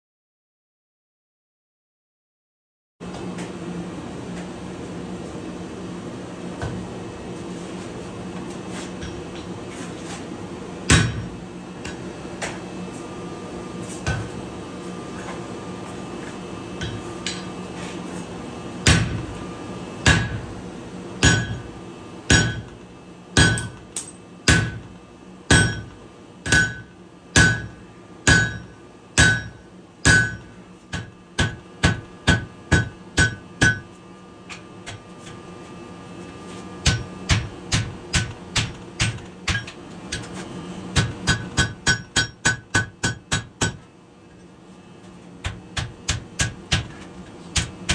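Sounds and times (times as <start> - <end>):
hammer striking steel on anvil: 10.9 - 11.3, 16.8 - 17.6, 20.0 - 20.4, 21.2 - 21.7, 22.3 - 22.8, 23.4 - 24.9, 25.5 - 33.9, 36.8 - 40.3, 41.0 - 43.8, 45.4 - 47.9.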